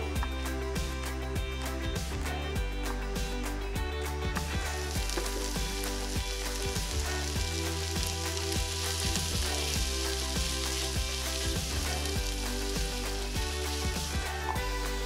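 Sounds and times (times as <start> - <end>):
background music: 0.0 - 15.0
peppers and onions sizzling in pan: 4.6 - 15.0.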